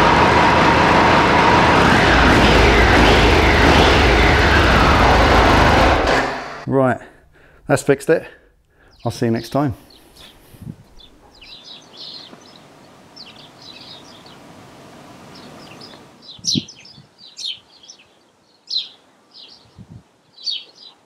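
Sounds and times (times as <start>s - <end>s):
small birds chirping: 8.8s - 14.4s, 15.3s - 21.0s.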